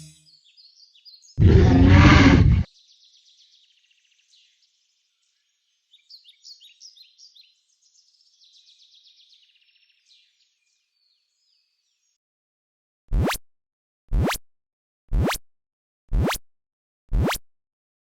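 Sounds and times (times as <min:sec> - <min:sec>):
birds chirping and trilling: 0:00.0 - 0:12.2.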